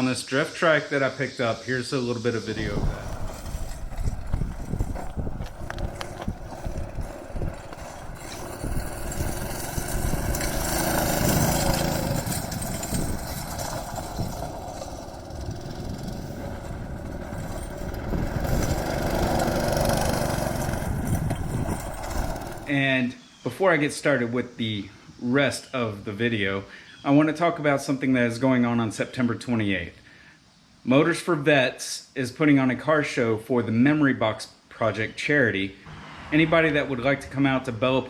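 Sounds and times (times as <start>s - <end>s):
small engine running: 2.6s - 22.7s.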